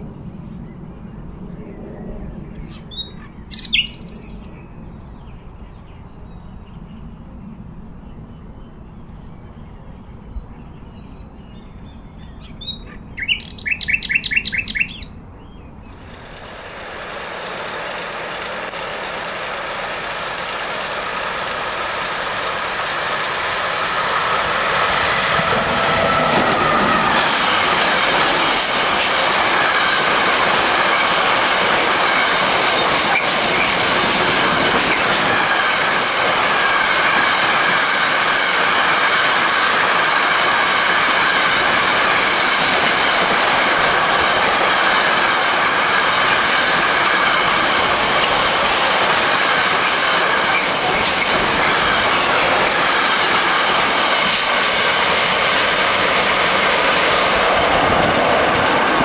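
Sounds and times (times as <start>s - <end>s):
train rushing past: 0.0s - 11.4s, 12.4s - 59.0s
bird chirping: 0.5s - 16.0s.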